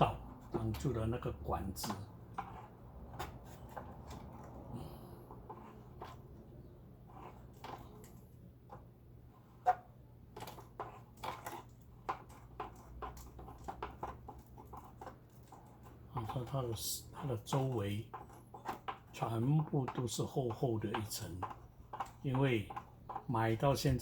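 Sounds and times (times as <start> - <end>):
clicks taps and scrapes of debris: 7.1 - 8.9, 9.6 - 24.0.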